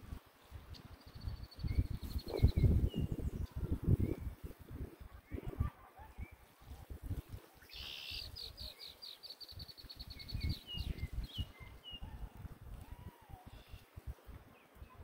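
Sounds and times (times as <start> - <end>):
wind rumble: 0.0 - 8.7, 9.9 - 15.0
bird trilling and whistling: 7.7 - 12.1.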